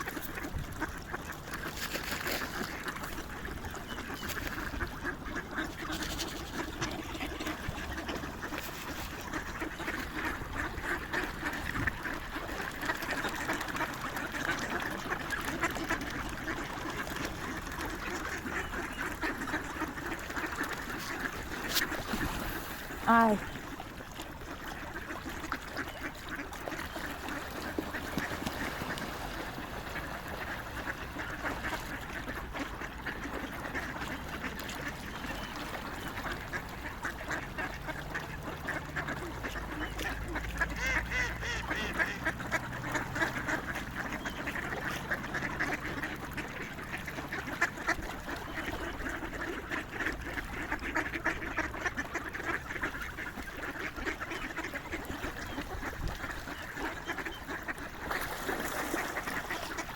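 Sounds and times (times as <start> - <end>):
swans and waterfowl calling: 0.0 - 59.9.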